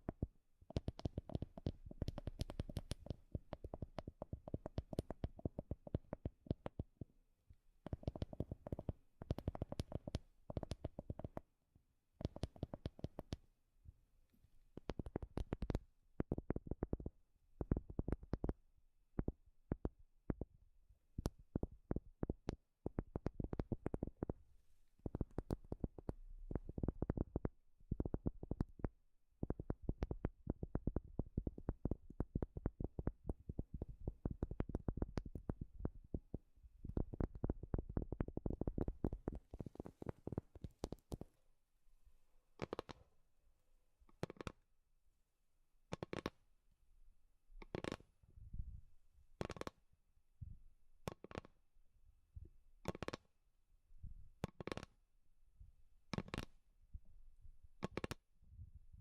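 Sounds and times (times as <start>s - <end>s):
fingertips tapping on wood: 0.0s - 7.0s, 7.8s - 11.5s, 12.2s - 13.4s.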